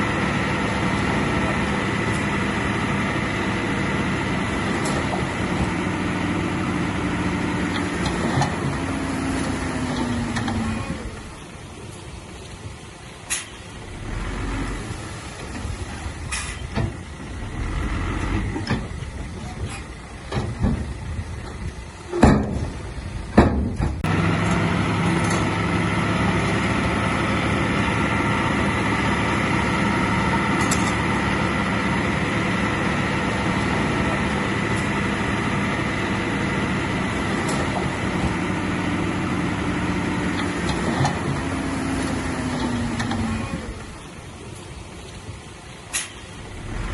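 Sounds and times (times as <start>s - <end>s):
diesel engine running: 0.0s - 46.9s
loud metallic knocks and clanks: 22.2s - 24.1s.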